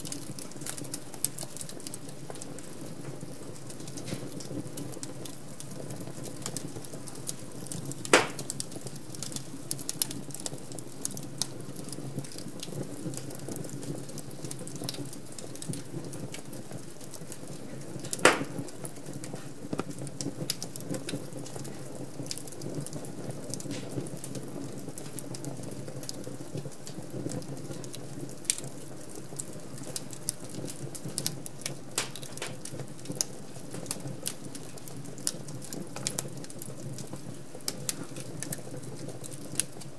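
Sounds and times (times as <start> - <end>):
fire pops: 0.0 - 39.9
wood fire crackling: 0.0 - 39.9.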